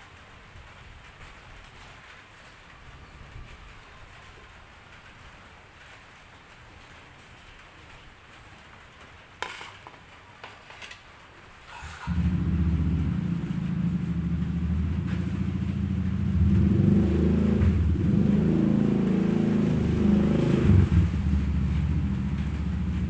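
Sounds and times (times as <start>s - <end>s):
vehicle engine starting and rumbling: 11.7s - 23.0s.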